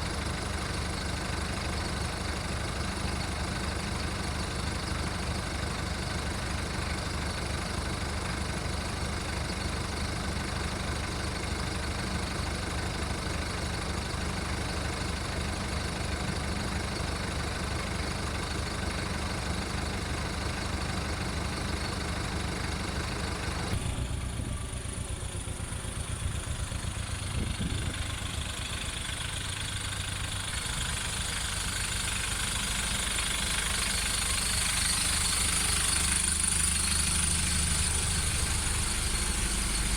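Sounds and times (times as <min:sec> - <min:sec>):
diesel engine idling roughly: 0:00.0 - 0:39.9.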